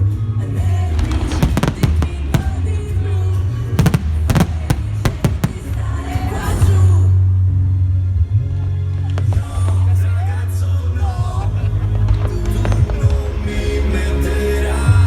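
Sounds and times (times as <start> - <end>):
loud music over loudspeakers: 0.0 - 7.2
fireworks bangs and crackles: 0.9 - 6.9, 11.9 - 13.7.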